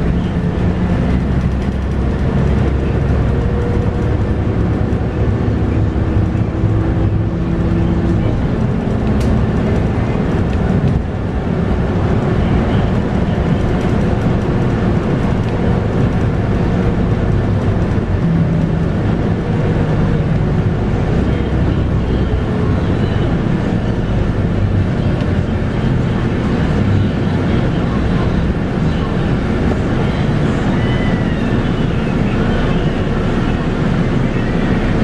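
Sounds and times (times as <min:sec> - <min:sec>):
bus diesel engine running: 0:00.0 - 0:35.0
road and body noise: 0:00.0 - 0:35.0.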